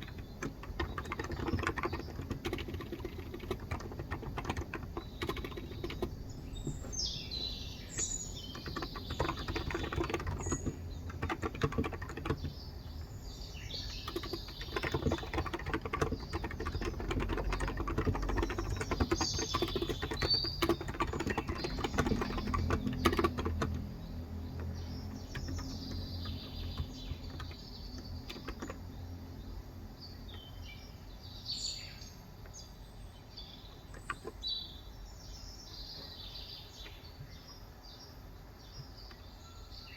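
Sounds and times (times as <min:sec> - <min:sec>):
keyboard typing: 0:00.0 - 0:12.7, 0:13.7 - 0:29.0, 0:33.9 - 0:34.4
birds chirping: 0:00.0 - 0:39.9.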